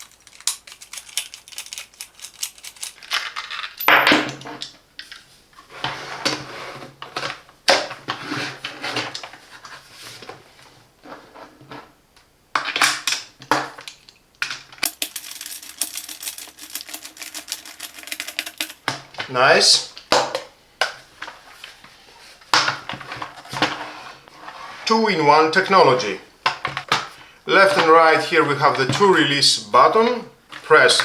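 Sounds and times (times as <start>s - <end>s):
screwdriver clicking and scraping: 0.0s - 3.0s, 14.8s - 18.9s
hard plastic parts handled: 12.6s - 19.4s.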